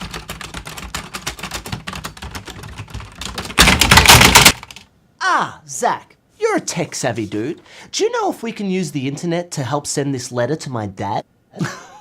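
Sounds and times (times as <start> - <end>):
rapid keyboard typing: 0.0 - 4.9.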